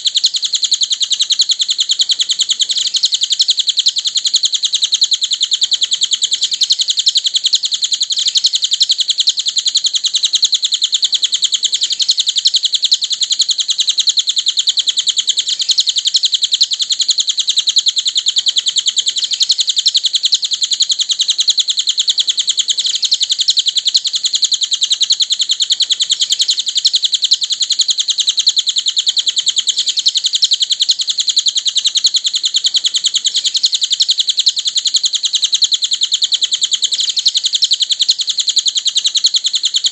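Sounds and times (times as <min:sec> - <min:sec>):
bird chirping rapidly: 0:00.0 - 0:39.9.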